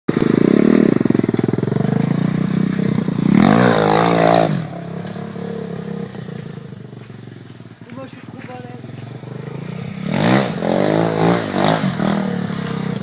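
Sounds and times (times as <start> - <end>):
off-road vehicle engine revving: 0.1 - 13.0.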